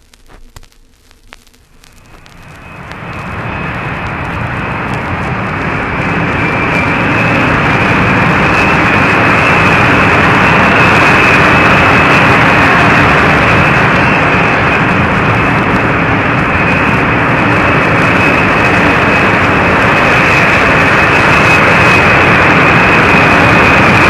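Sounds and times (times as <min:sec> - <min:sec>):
vinyl surface noise with clicks: 0:00.0 - 0:03.0
jet aircraft engine whine: 0:00.0 - 0:24.0.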